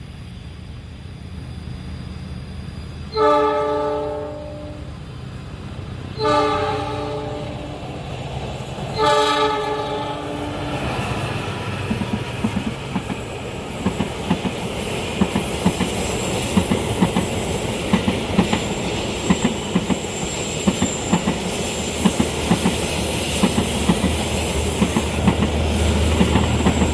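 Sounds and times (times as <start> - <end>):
train rumble: 0.0 - 26.9
train wheels clicking over rail joints: 10.6 - 26.9
high wheel squeal: 18.4 - 23.5, 25.7 - 26.9.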